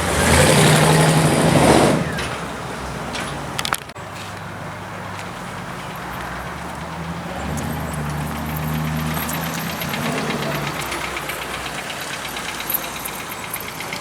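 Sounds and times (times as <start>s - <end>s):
car engine running: 5.1s - 14.0s.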